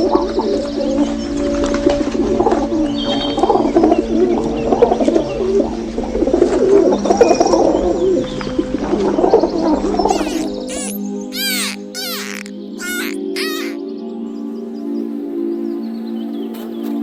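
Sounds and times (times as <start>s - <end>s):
birds warbling: 10.0s - 13.9s
faint high bird chirps: 10.1s - 13.8s.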